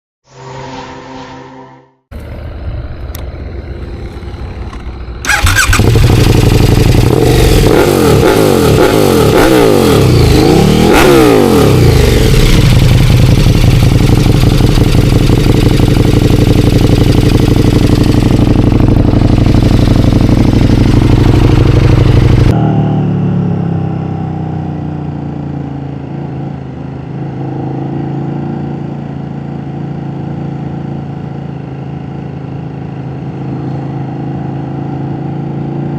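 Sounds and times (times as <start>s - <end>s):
motorcycle engine revving: 2.1s - 29.5s.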